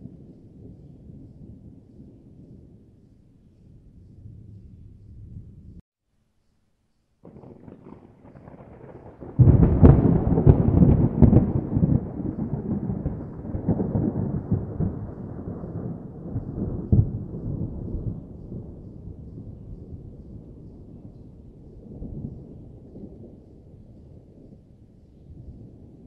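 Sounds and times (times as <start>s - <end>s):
thunder rumbling: 0.0s - 5.8s, 7.2s - 26.0s
sharp thunder cracks: 7.2s - 23.6s.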